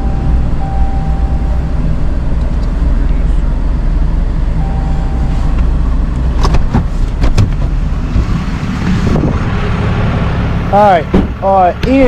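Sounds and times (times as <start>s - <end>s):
engine running low rumble: 0.0s - 12.0s
sharp clicks and knocks: 6.2s - 8.4s.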